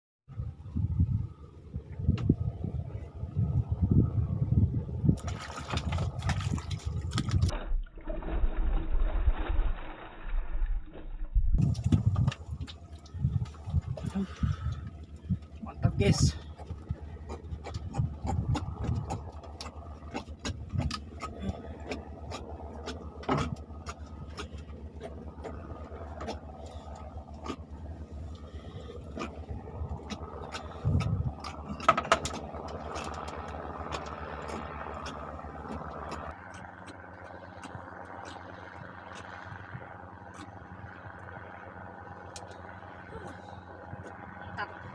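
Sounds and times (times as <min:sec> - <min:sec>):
motor hum: 0:00.3 - 0:44.9
sharp clicks and knocks: 0:30.0 - 0:38.5.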